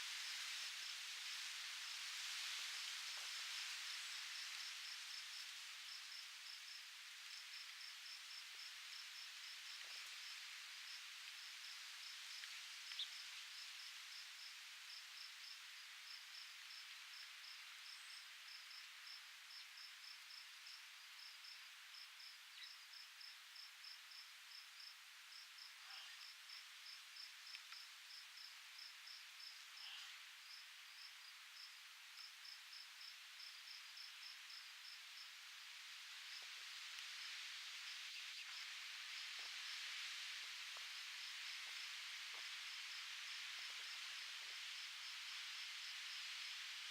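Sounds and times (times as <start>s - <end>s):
breeze hiss: 0.0s - 46.9s
insect chirps: 0.1s - 46.9s
faint ticks: 27.2s - 27.9s.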